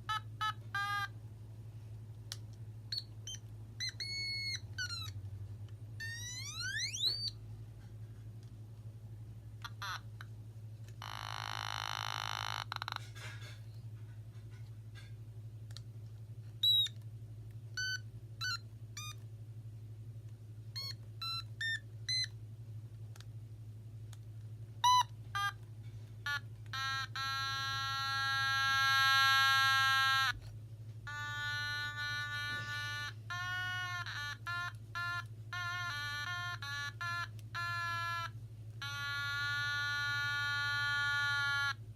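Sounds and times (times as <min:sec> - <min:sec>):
buzzy electronic instrument notes: 0:31.0 - 0:41.8.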